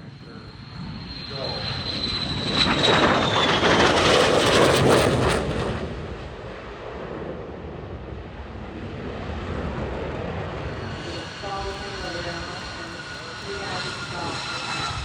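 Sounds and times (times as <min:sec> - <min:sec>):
fighter jet passing overhead: 0:00.0 - 0:15.0
high jet whine: 0:00.0 - 0:15.0.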